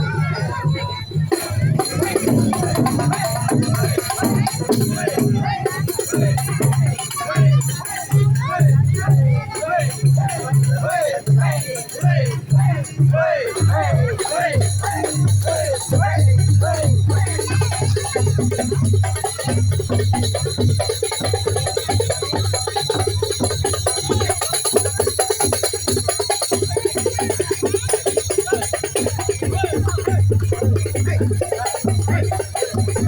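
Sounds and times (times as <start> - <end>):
jingling bells: 0.0 - 33.0
procession music with fast beat: 0.0 - 33.0.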